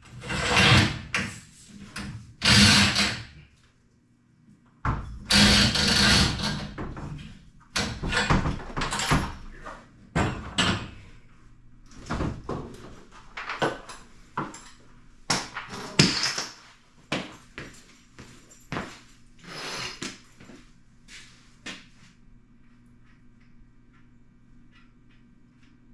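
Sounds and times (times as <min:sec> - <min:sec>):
tools knocking and clanking: 0:07.8 - 0:09.6.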